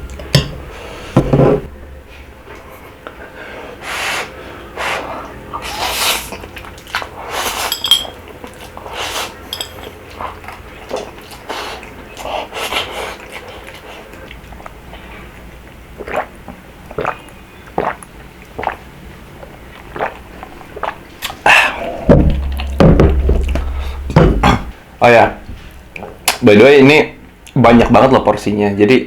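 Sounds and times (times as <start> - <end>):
wet chewing and slurping: 4.9 - 24.1
mouth smacks: 16.0 - 18.8, 19.4 - 24.8.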